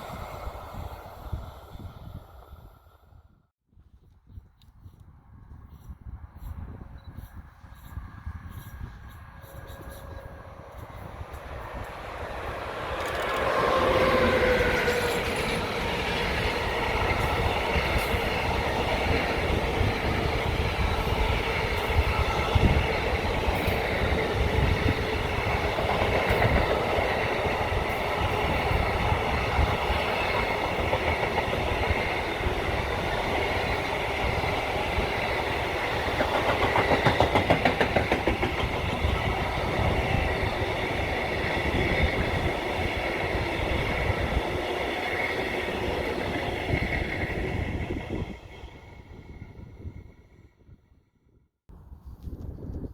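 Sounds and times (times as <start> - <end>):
train passing: 0.0 - 3.1, 7.4 - 50.6
train whine: 0.0 - 3.2, 7.3 - 50.9
rhythmic train wheel beats: 9.5 - 48.3.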